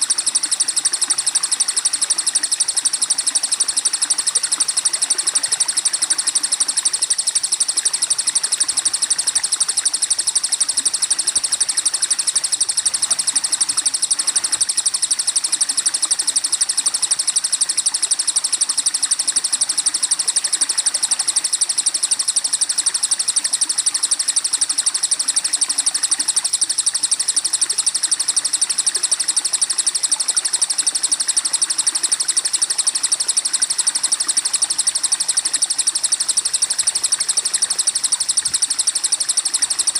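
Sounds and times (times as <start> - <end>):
rapid high bird trill: 0.0 - 18.2.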